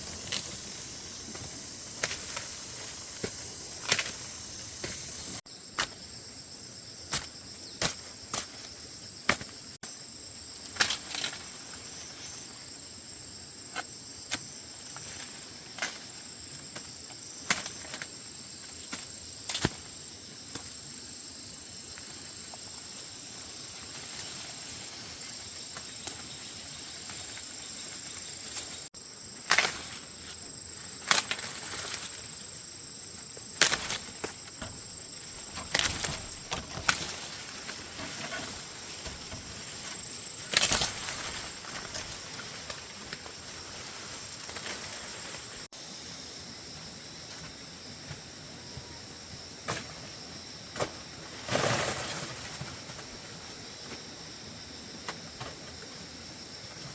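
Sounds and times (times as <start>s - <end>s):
sharp snaps and crackles: 40.4s - 43.3s.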